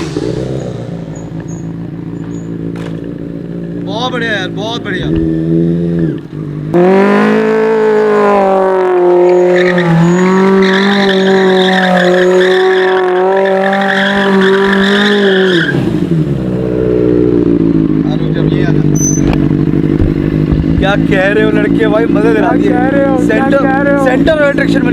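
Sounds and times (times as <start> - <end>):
motorbike engine at high revs: 0.0 - 24.9
tyre squeal: 0.2 - 2.8, 9.2 - 16.0, 18.9 - 19.4.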